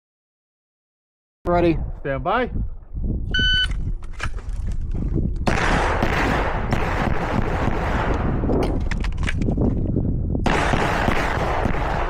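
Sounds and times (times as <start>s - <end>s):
pistol shots: 5.5s - 8.6s, 10.4s - 12.0s.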